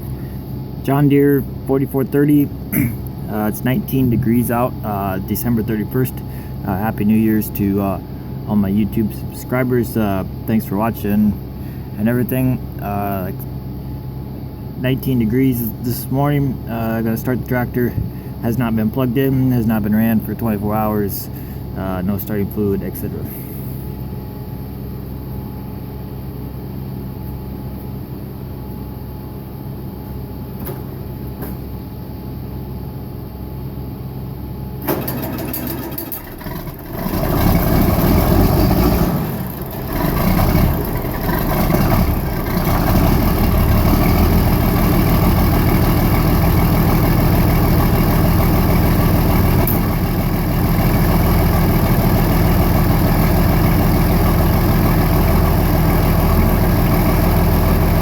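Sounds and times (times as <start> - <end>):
tractor diesel engine idling: 0.0 - 24.0, 34.8 - 58.0
steady low hum: 0.0 - 58.0
starter motor cranking: 34.8 - 53.5.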